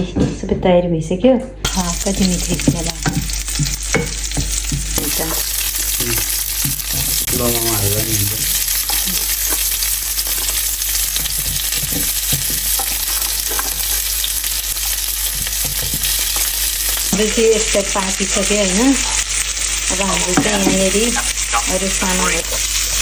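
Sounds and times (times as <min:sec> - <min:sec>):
spatula scraping and knocking pan: 0:01.7 - 0:07.4, 0:08.2 - 0:14.1, 0:14.8 - 0:17.5, 0:19.6 - 0:21.1
chicken sizzling in hot oil: 0:01.7 - 0:23.0.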